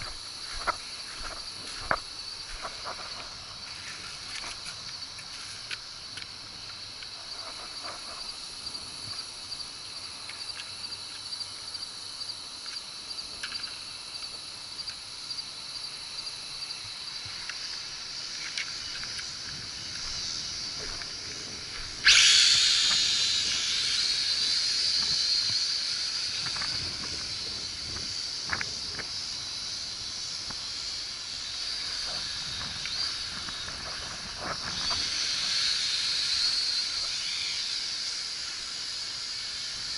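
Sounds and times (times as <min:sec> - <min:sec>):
toy drone propellers whirring: 0:17.5 - 0:39.9.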